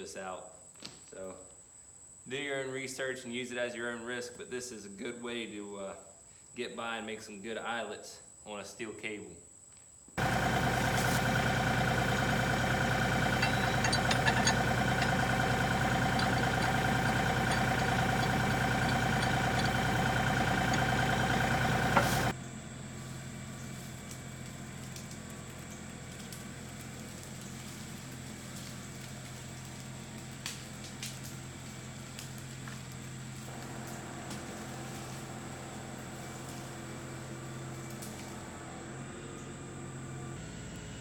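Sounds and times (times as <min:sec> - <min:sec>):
tractor diesel engine running: 0:10.2 - 0:41.0.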